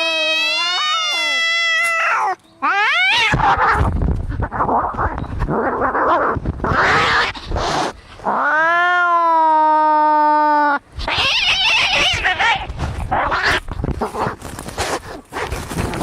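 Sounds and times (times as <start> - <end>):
cat yowling: 0.0 - 3.9, 8.3 - 13.6
cats hissing and spitting: 3.2 - 8.4.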